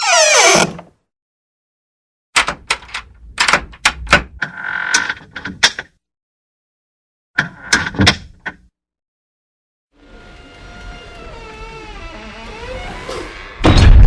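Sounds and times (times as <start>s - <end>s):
door hinges squealing: 0.0s - 0.9s, 10.3s - 13.8s
door clicks and knocks: 2.4s - 4.4s.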